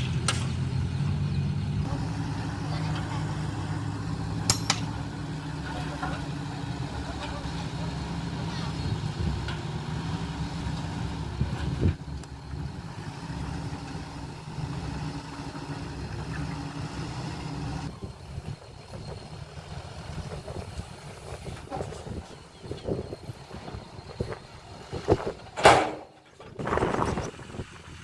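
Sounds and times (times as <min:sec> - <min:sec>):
diesel engine running: 0:00.0 - 0:28.0
loud metal clank: 0:04.4 - 0:05.0, 0:25.6 - 0:26.2.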